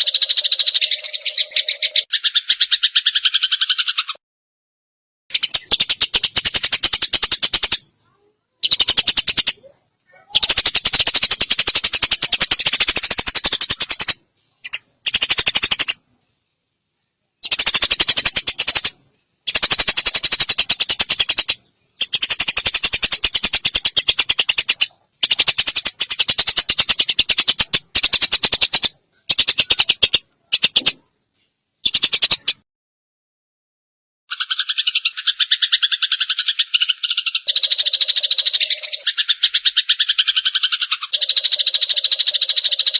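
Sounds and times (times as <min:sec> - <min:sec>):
sparrows chattering: 0:00.0 - 0:04.2, 0:05.3 - 0:16.0, 0:17.4 - 0:31.0, 0:31.8 - 0:32.6, 0:34.3 - 0:42.9.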